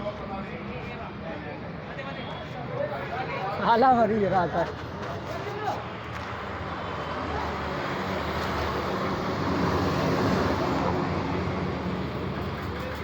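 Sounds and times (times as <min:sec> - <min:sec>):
vehicle passing: 0:07.2 - 0:12.8.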